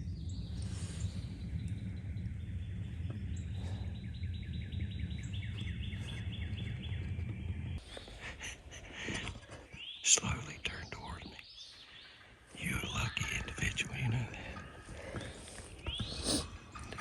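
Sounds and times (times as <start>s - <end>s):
wind rumble on microphone: 0.0s - 9.5s
songbird chirping: 0.0s - 17.0s.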